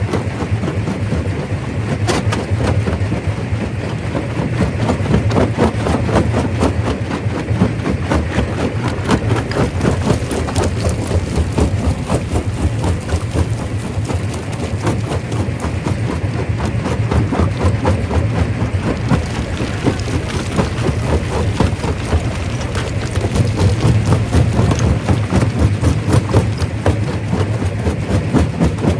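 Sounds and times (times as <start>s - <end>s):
rock crusher machine hum: 0.0s - 28.9s
rocks cracking and knocking: 2.0s - 28.9s.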